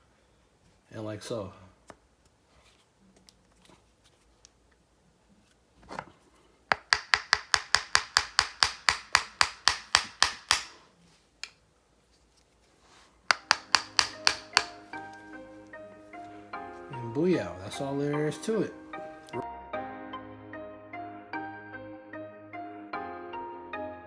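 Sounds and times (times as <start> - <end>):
tool tapping metal sleeve: 6.7 - 10.8, 13.3 - 15.3.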